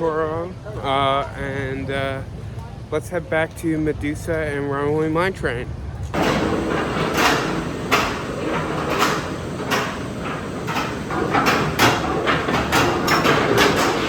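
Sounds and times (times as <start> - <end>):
machinery clanks: 6.2 - 14.0
steady rumbling: 6.2 - 14.0.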